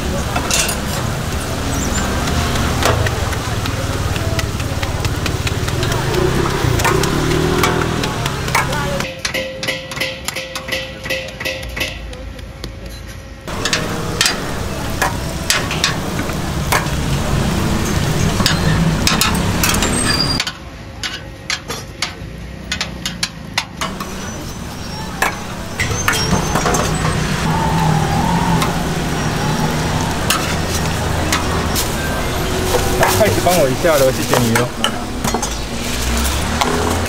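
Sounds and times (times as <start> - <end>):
cooking utensils clicking: 0.2 - 11.9, 13.5 - 17.0
food sizzling on griddle: 23.9 - 36.5.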